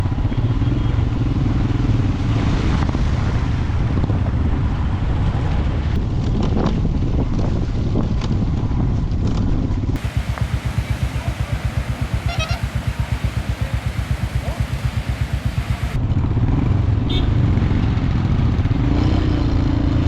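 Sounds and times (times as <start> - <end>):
pulsing engine note: 10.0 - 16.0
water splashing: 10.0 - 16.0
motorcycle engine running: 10.0 - 18.9.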